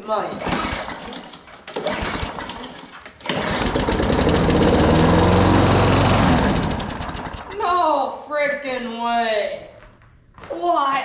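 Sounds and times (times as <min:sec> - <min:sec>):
lawn mower engine starting: 0:00.3 - 0:07.6.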